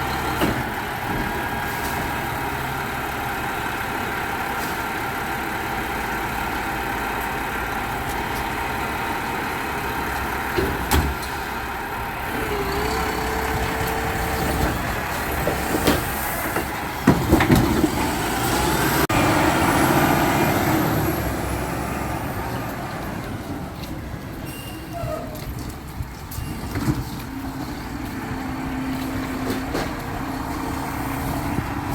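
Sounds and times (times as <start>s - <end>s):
garbage truck engine running: 0.0s - 24.4s.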